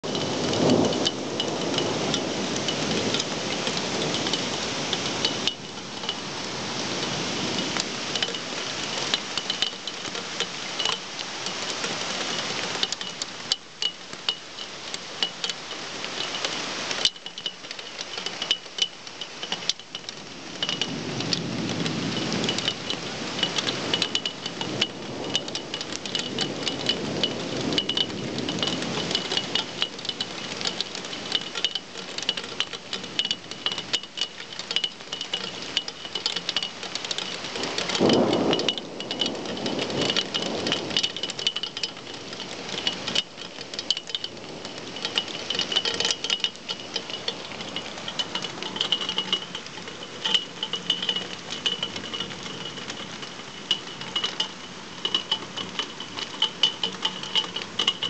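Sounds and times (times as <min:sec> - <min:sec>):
thunder rumbling: 0:00.0 - 0:08.3, 0:37.6 - 0:42.9
heavy rain pouring: 0:00.0 - 0:58.0.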